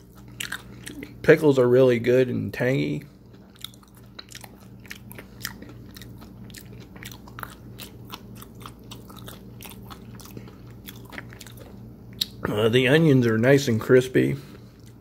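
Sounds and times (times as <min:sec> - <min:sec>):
person chewing crunchy food: 0:00.0 - 0:01.2, 0:02.8 - 0:12.6, 0:14.4 - 0:15.0.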